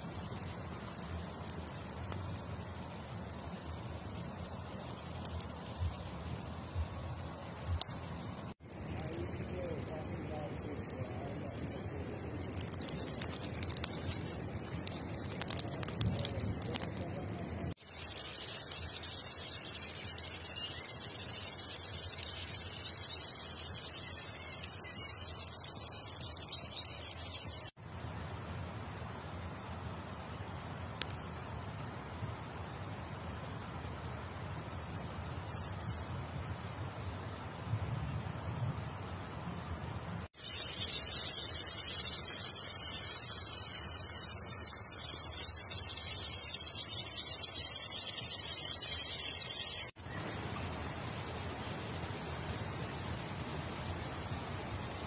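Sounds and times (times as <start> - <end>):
food sizzling on a griddle: 0.0 - 7.8, 8.5 - 27.8, 40.3 - 55.0
faint steady hiss: 0.0 - 55.0.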